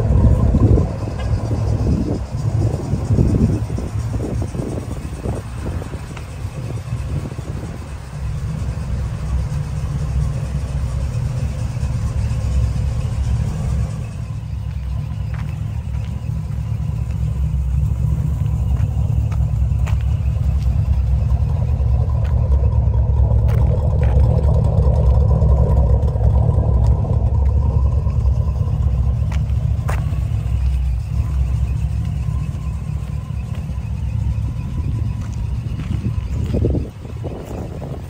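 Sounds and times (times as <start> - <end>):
car engine rumbling: 0.0 - 38.0.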